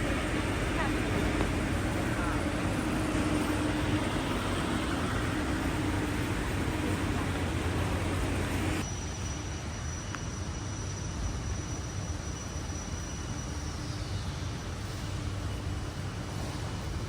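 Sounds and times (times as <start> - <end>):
low mechanical rumble: 0.0 - 9.8
thin high whine: 0.0 - 17.0.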